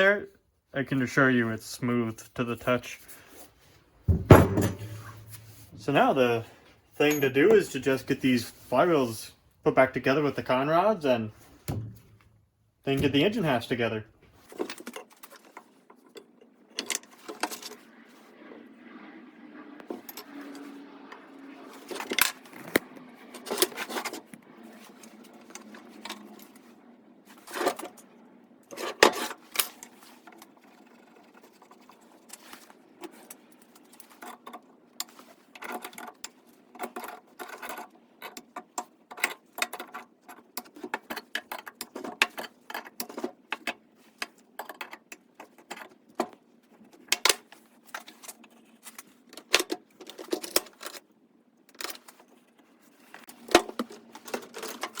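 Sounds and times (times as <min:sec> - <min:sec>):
metal tools clinking: 0:07.0 - 0:08.2.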